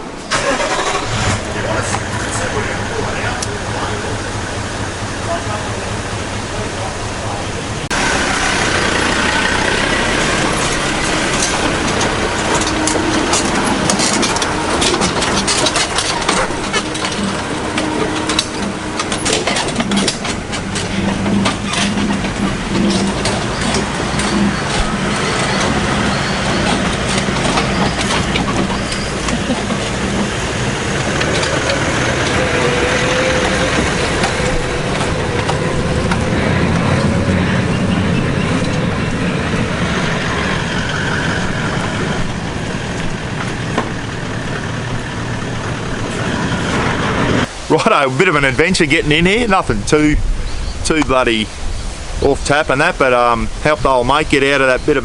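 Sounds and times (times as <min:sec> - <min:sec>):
vehicle engine running: 0:00.0 - 0:51.7
tyres on rough dirt track: 0:00.0 - 0:55.0
sharp clicks and knocks: 0:09.2 - 0:47.5.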